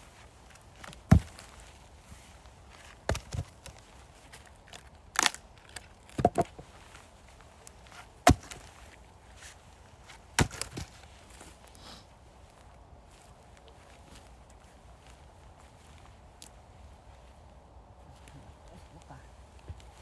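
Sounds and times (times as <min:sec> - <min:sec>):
axe splitting firewood: 0:00.5 - 0:01.6, 0:02.8 - 0:03.9, 0:04.5 - 0:06.8, 0:07.8 - 0:08.9, 0:10.3 - 0:11.1.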